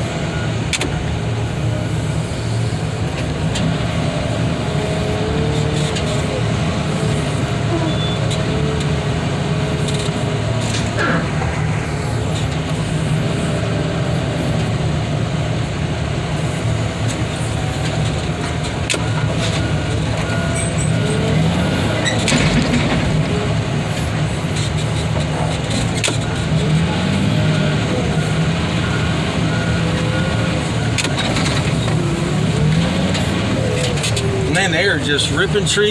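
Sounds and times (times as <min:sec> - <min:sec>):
heavy machinery engine running: 0:00.0 - 0:35.9.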